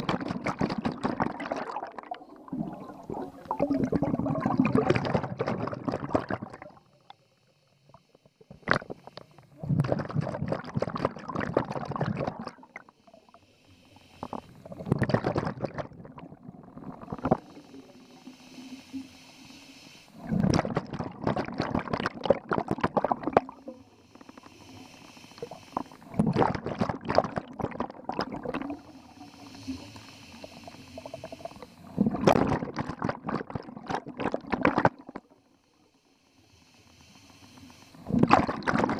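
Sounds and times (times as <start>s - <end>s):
exhaled bubbles gurgling: 0.0s - 7.0s, 8.4s - 19.6s, 20.2s - 35.4s, 37.6s - 38.9s
regulator inhalation hiss: 6.8s - 9.5s, 12.6s - 14.8s, 16.8s - 20.3s, 23.5s - 26.2s, 28.4s - 31.9s, 35.2s - 38.2s.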